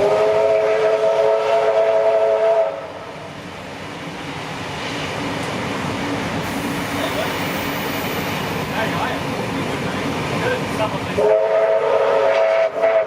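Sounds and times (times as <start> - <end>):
train running: 0.0 - 13.0
steam whistle chord blast: 11.2 - 13.0.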